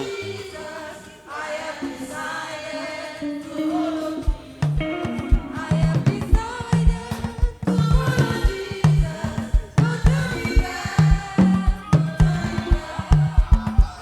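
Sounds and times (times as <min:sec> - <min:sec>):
choir singing: 0:00.0 - 0:14.0
drum kit beat: 0:04.2 - 0:14.0
bass line: 0:04.6 - 0:14.0.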